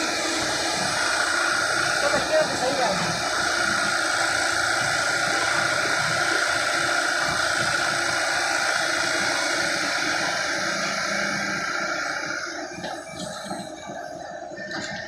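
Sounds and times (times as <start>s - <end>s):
excavator diesel engine running: 0.0s - 15.0s
high mechanical whine: 0.0s - 15.0s.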